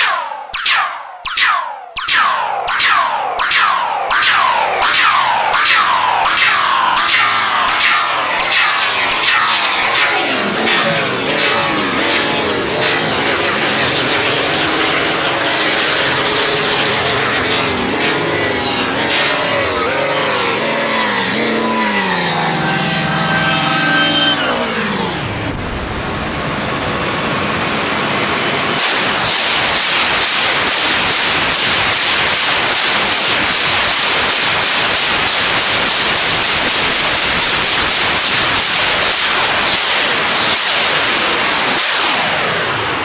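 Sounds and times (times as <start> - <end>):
synthesizer tone gliding down: 0.0 - 28.2, 37.6 - 43.0
synthesizer laser zaps: 0.0 - 43.0.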